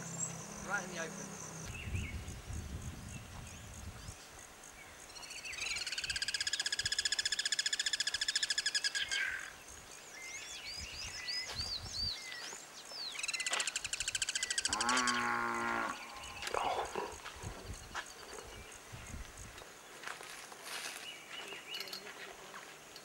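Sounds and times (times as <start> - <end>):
bird trilling and chirping: 13.1 - 16.6.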